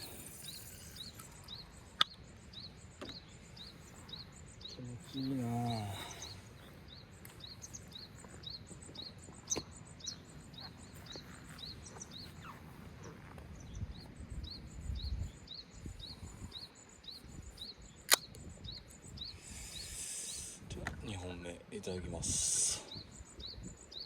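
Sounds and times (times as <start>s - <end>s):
bird chirping: 0.0s - 24.0s
faint background noise: 0.0s - 24.0s
sharp click: 18.0s - 18.4s.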